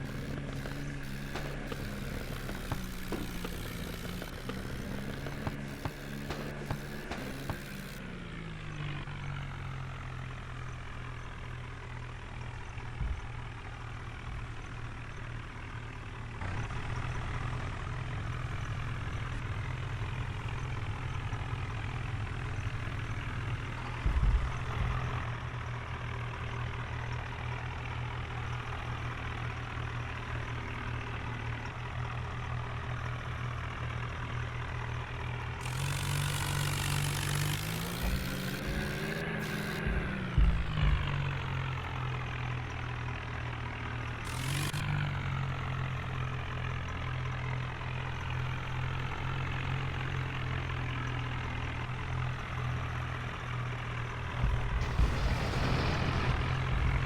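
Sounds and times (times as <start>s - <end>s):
tractor diesel engine running: 0.0s - 57.0s
loud low thump: 37.7s - 41.2s, 54.4s - 57.0s.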